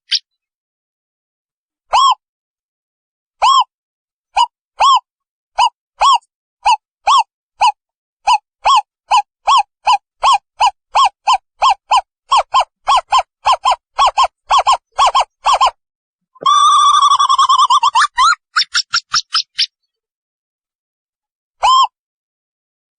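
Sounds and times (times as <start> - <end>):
owl wavering trill: 4.4 - 15.8, 16.4 - 19.8.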